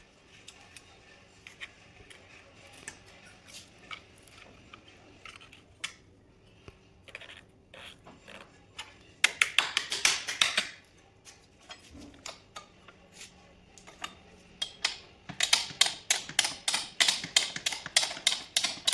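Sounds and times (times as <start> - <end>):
hand tools clicking on metal: 9.2 - 10.8, 11.7 - 13.0, 13.8 - 18.9.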